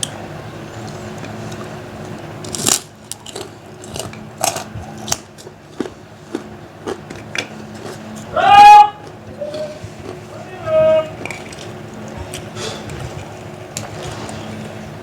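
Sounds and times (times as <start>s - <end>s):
steady low hum: 0.0s - 15.0s
crunching a crisp cracker: 2.4s - 8.3s.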